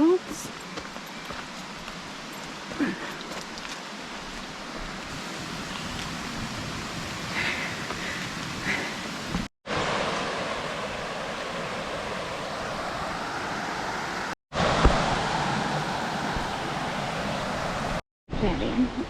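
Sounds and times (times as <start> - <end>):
waterfall rushing: 5.1 - 18.0.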